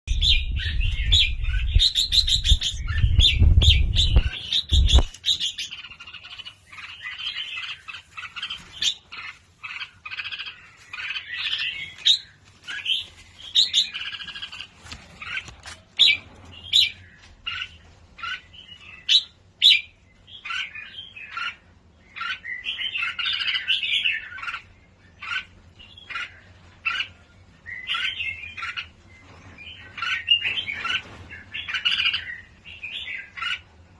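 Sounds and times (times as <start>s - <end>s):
low rumble: 0.1s - 5.1s
birds chirping and squawking: 0.1s - 33.9s.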